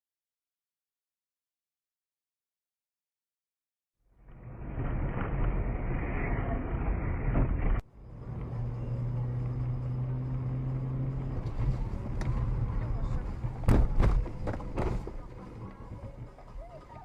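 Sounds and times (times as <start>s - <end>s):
car engine and road rumble: 4.2s - 17.0s.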